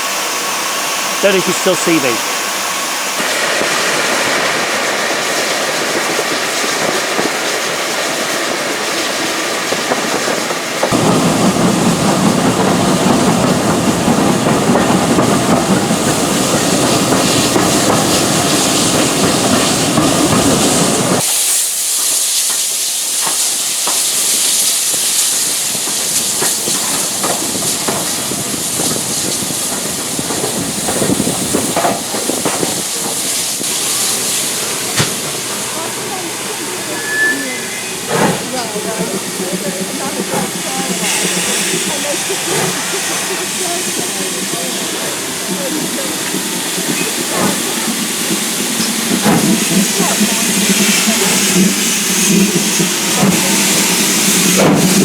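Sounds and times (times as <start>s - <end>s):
steam train hissing: 0.0s - 55.0s.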